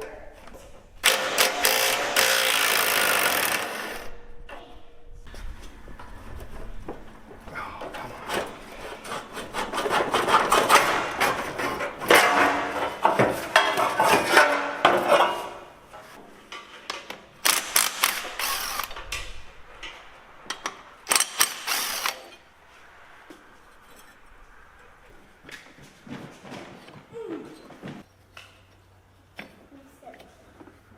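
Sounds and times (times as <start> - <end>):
handheld power tool running: 1.0 - 4.1, 17.4 - 19.2, 21.1 - 22.4.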